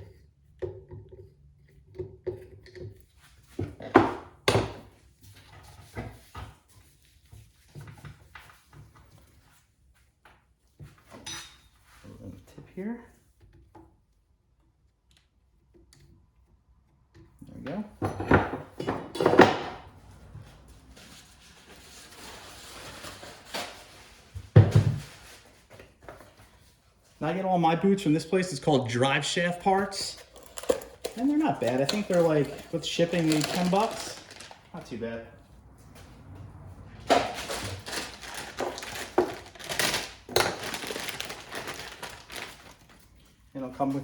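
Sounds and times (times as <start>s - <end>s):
quiet scraping and rustling: 19.9s - 27.2s
packaging crinkling and rustling: 21.0s - 26.0s, 29.4s - 35.0s, 37.0s - 43.3s.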